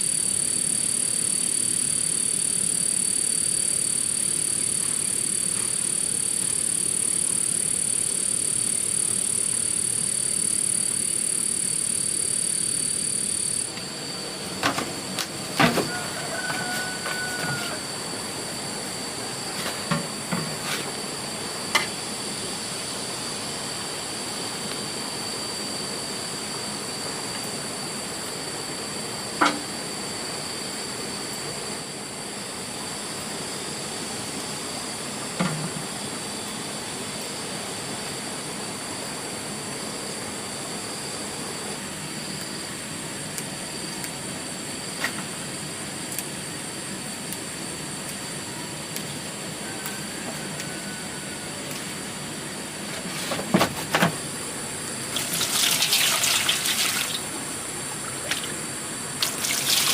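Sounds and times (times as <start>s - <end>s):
high-pitched whine: 0.0s - 59.9s
steady hiss: 54.2s - 59.9s.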